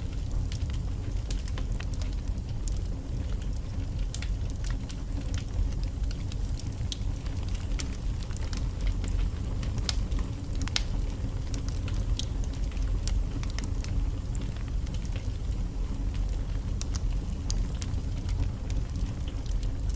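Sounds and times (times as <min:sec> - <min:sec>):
fire flames rumbling: 0:00.0 - 0:19.9
logs popping and crackling: 0:00.0 - 0:19.9.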